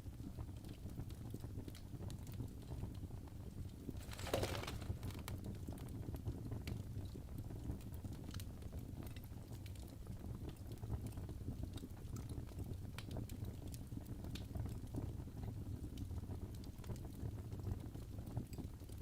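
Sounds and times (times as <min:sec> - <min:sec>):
fire crackles and pops: 0:03.4 - 0:06.8.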